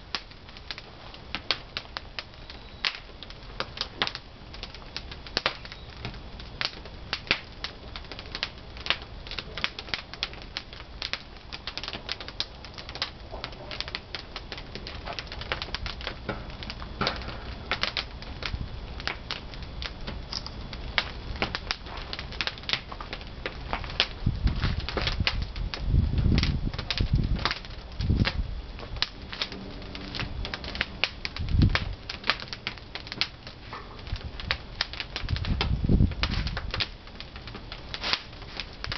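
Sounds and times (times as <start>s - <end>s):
firewood crackling and popping: 0.0s - 38.9s
steady low noise: 12.3s - 38.9s.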